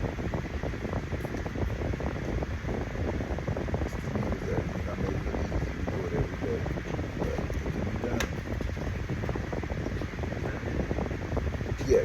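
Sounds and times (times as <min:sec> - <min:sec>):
fan running: 0:00.0 - 0:12.0.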